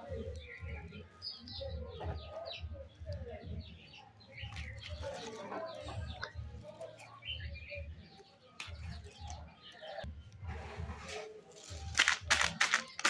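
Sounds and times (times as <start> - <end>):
birds chirping: 0.0 - 10.4
hands handling plastic wrappers: 11.6 - 13.0.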